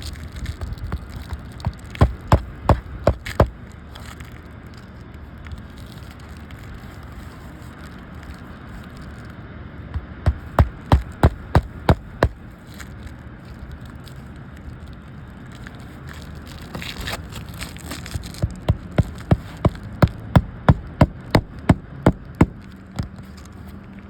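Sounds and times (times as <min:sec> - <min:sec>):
hammer blows on shingle roof: 0:00.9 - 0:03.5, 0:10.0 - 0:12.4, 0:18.4 - 0:23.2.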